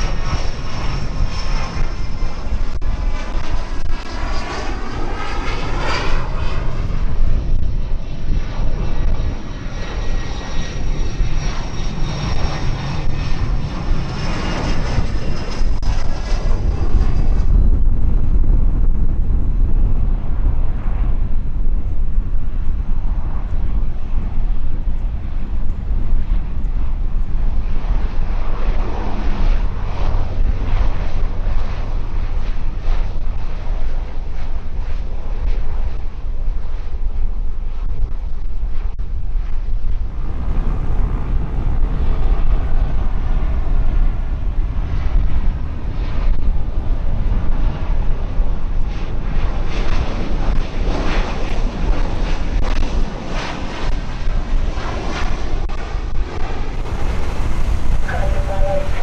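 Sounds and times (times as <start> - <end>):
airplane engines rumbling: 0.0 - 37.8, 39.2 - 59.0.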